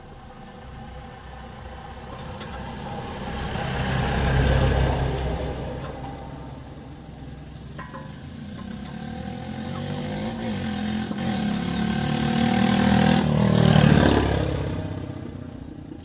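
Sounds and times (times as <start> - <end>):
vehicle engine passing by: 8.7 - 16.0.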